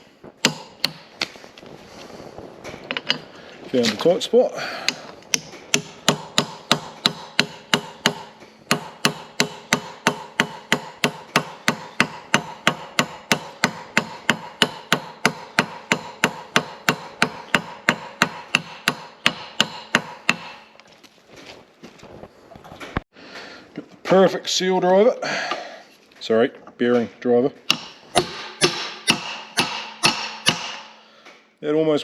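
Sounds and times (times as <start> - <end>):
hammer tapping metal: 0.4 - 1.2, 4.8 - 20.7, 27.6 - 31.0.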